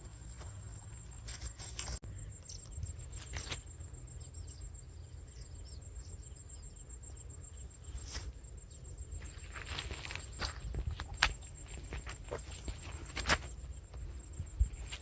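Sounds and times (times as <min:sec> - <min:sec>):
high pulsing insect trill: 0:00.1 - 0:15.0.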